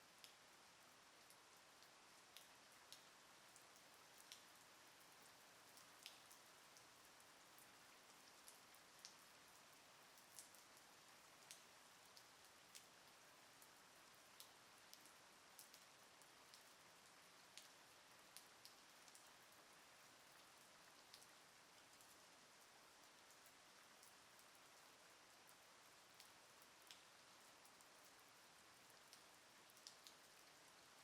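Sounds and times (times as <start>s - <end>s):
light rain hiss: 0.0s - 31.0s
raindrops ticking: 5.3s - 6.4s.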